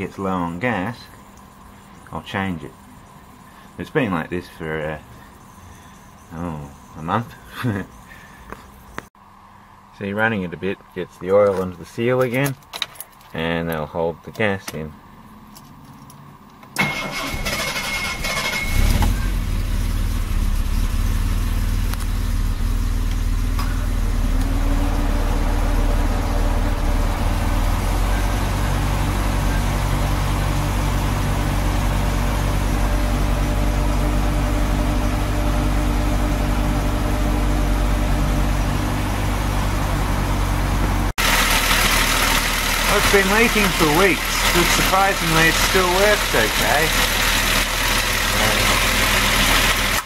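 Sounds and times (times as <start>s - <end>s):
car starter cranking: 16.7s - 19.4s
car engine idling: 16.8s - 50.0s.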